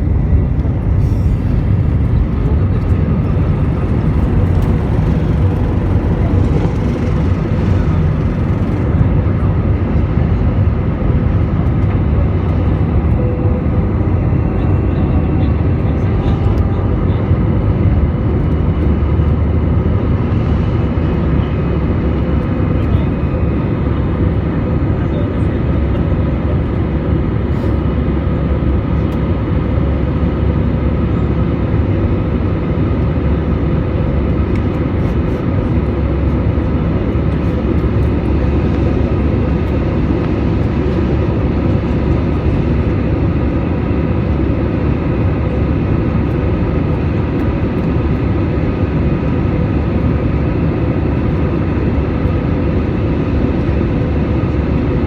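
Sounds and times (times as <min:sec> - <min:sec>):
steady whining tones: 0:00.0 - 0:10.6
jet engines roaring: 0:00.0 - 0:55.0.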